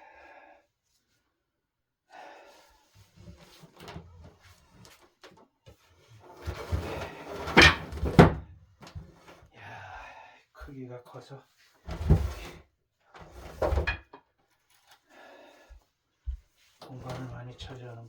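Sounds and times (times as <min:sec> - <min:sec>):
wooden table knocking and scraping: 0:06.4 - 0:08.4, 0:11.9 - 0:12.5, 0:13.4 - 0:14.0.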